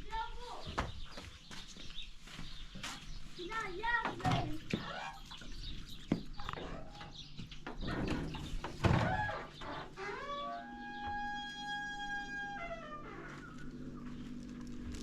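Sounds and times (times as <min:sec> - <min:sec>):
chickens clucking: 0:03.9 - 0:08.7.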